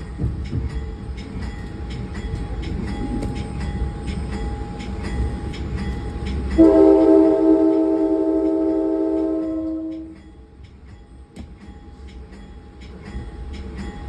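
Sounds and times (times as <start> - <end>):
train rumbling: 0.0 - 14.0
train horn blast: 6.6 - 10.2.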